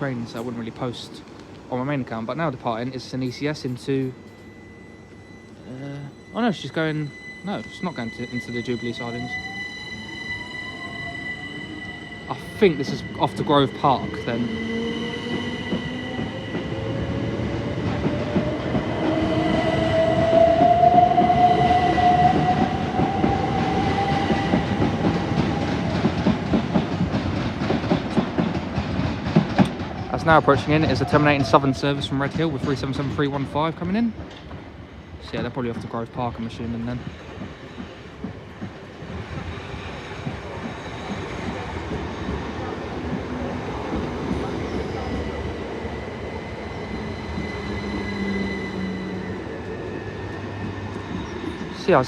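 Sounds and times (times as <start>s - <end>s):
low train whine: 0.0s - 52.0s
train rumble: 0.0s - 52.0s
wheels clattering on track: 24.3s - 45.9s
electric train motors whining: 37.2s - 52.0s.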